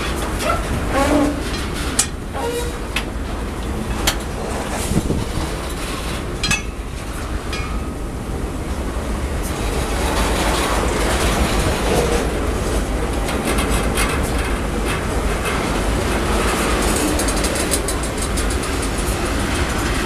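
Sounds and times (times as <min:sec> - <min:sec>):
freight train rolling past: 0:00.0 - 0:20.0
wheels clacking over rail joints: 0:00.0 - 0:20.0.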